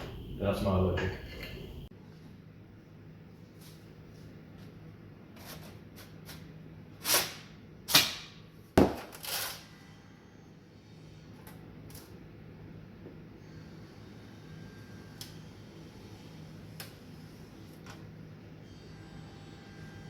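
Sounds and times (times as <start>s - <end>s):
low steady hum: 0.0s - 5.1s.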